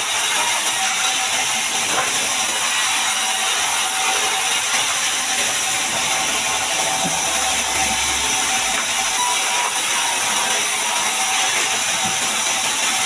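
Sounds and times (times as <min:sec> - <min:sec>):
band saw cutting log: 0:00.0 - 0:13.0.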